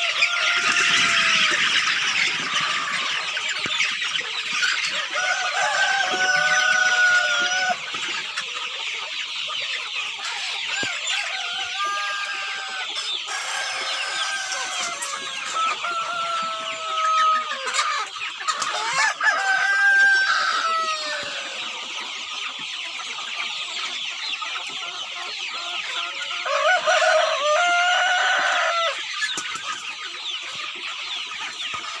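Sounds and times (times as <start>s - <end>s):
roosters crowing: 0.0s - 8.4s, 10.2s - 21.9s, 25.8s - 29.1s
hens clucking: 0.0s - 32.0s.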